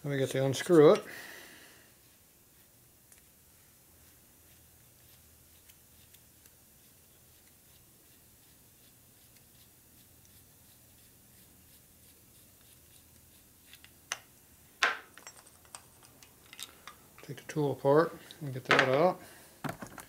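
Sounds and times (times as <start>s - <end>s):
tool handling noises: 14.8s - 17.3s, 18.2s - 20.0s
sharp clicks and knocks: 19.6s - 20.0s.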